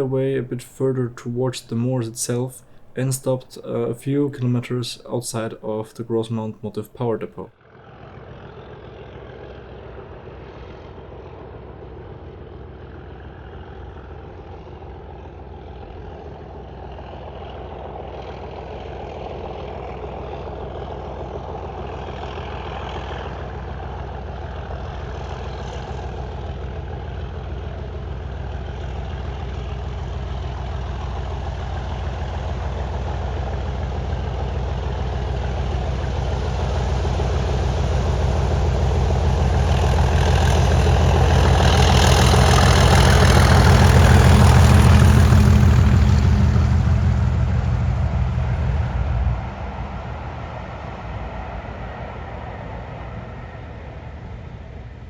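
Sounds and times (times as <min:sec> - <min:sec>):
diesel locomotive engine running: 0:26.2 - 0:55.0.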